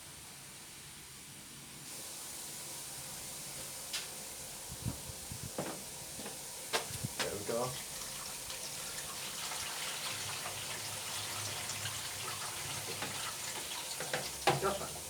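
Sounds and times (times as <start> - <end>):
water running from a tap: 6.8 - 15.0.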